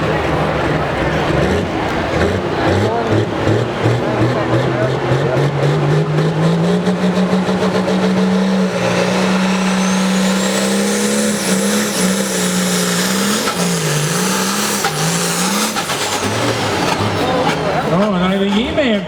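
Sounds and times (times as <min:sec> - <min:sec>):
vehicle engine running under load: 0:00.0 - 0:19.0
high whine: 0:07.4 - 0:16.8.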